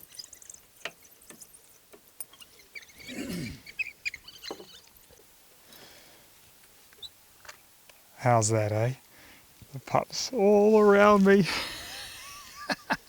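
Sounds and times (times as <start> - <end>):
wild dog pups squeaking: 2.3 - 5.2.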